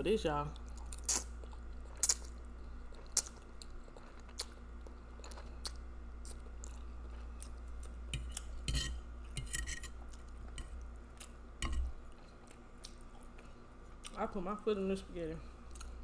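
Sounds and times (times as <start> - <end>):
chewing with wet mouth clicks: 0.6 - 8.6, 12.1 - 14.2, 15.7 - 16.0
fork scraping a ceramic plate: 8.2 - 10.0.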